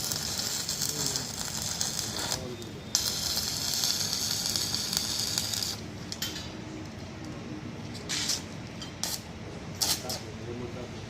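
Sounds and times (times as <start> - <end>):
arc welding crackling hiss: 0.0 - 5.9, 8.0 - 10.3.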